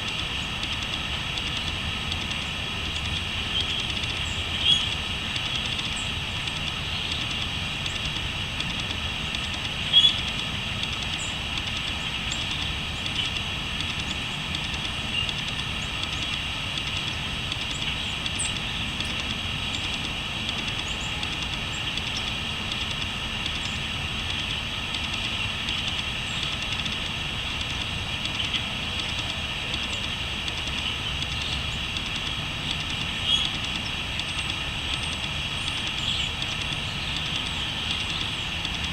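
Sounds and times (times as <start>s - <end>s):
crickets trilling: 0.0s - 38.9s
short bird calls: 3.6s - 5.0s, 9.9s - 10.2s.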